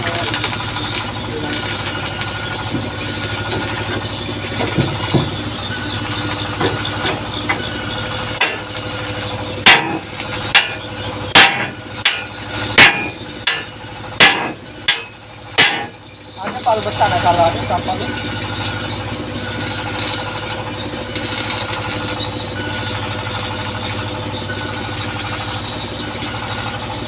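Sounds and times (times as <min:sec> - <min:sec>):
engine running steadily: 0:00.0 - 0:27.0
hammer striking hard: 0:09.6 - 0:13.6, 0:14.2 - 0:16.0.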